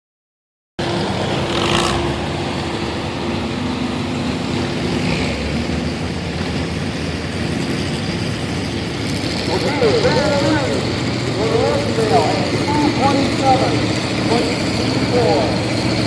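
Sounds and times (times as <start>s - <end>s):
truck engine running: 0.8s - 16.0s.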